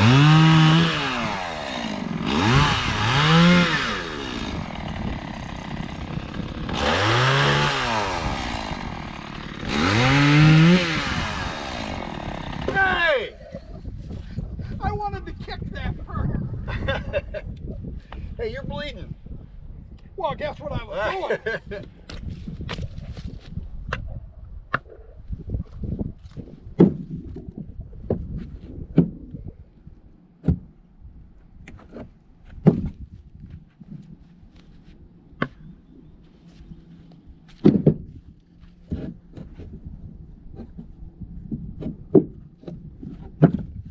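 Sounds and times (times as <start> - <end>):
chainsaw revving: 0.0 - 12.9
sharp knocks with dull thud: 37.6 - 38.1.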